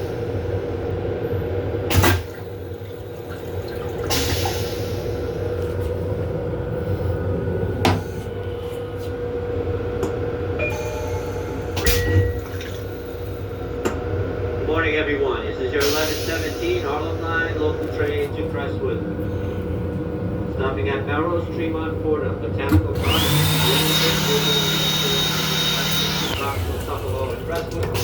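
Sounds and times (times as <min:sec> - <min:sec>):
equipment humming: 0:00.0 - 0:28.0
loud clunks of fittings: 0:01.9 - 0:02.5, 0:11.8 - 0:12.8.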